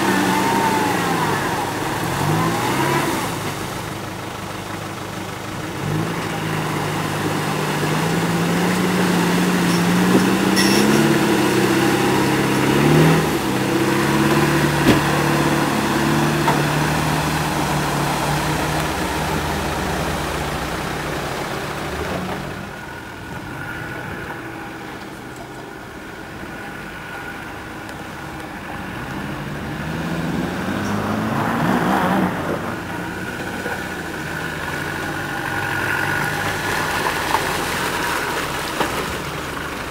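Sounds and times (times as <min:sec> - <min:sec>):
off-road vehicle engine: 0:00.0 - 0:39.9
knocks and clunks: 0:14.4 - 0:15.4.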